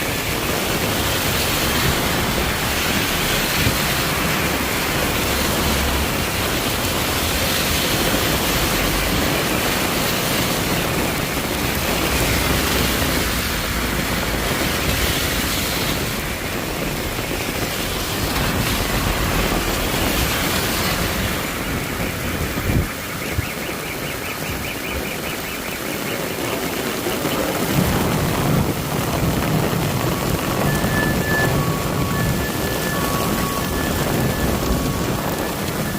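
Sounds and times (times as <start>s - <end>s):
heavy rain pouring: 0.0s - 35.9s.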